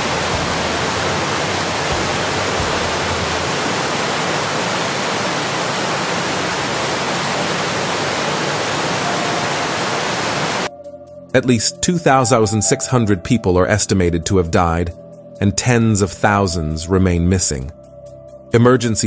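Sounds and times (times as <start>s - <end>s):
rushing water roar: 0.0s - 10.7s.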